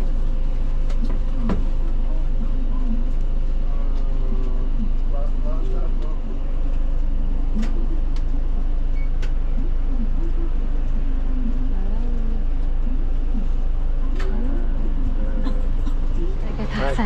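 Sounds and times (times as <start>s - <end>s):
faint voices: 0.0s - 17.0s
bus engine humming: 3.6s - 17.0s.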